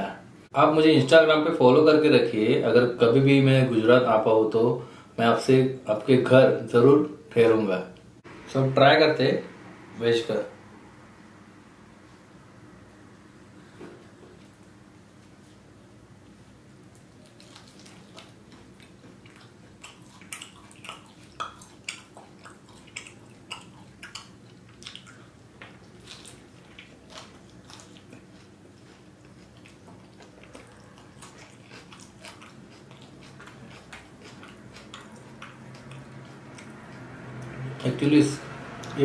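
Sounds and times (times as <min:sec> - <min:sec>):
mouth clicks and smacks chewing: 0:16.8 - 0:37.6.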